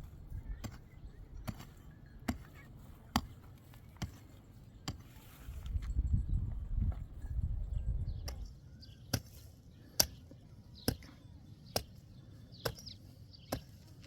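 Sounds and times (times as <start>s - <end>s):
birds chirping faintly: 0.0s - 14.0s.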